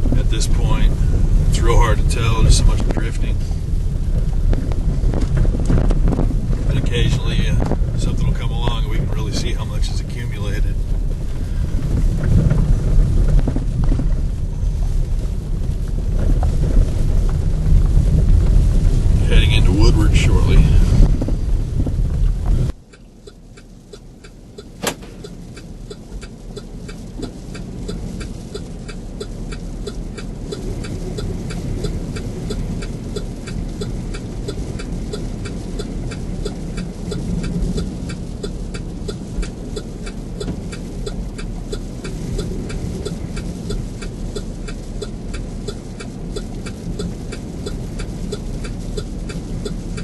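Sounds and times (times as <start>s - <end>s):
engine and road rumble: 0.0s - 50.0s
fast ticking: 22.8s - 50.0s
sharp click: 24.6s - 25.4s.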